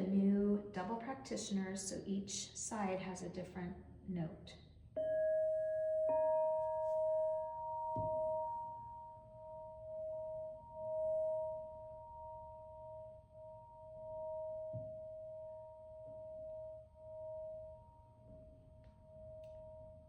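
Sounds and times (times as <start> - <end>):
crystal singing bowl ringing: 5.0 - 20.0.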